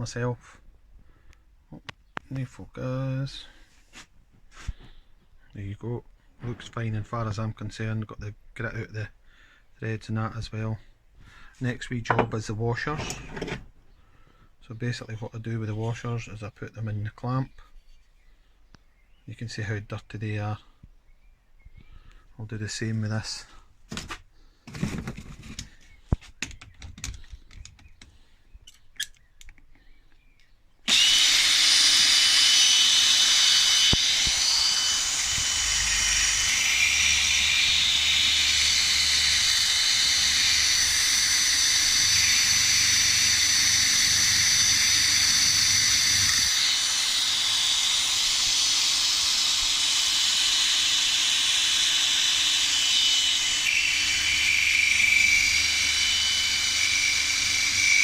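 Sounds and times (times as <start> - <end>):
power tool whining: 12.1 - 13.8, 30.9 - 58.0.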